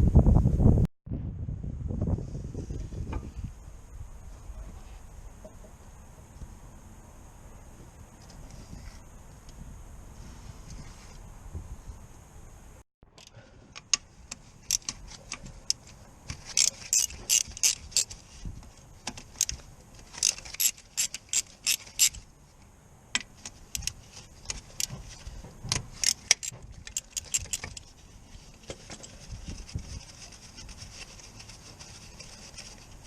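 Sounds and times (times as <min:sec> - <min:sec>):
hand ratchet clicking: 0:16.4 - 0:18.2, 0:19.4 - 0:22.2, 0:25.9 - 0:27.9.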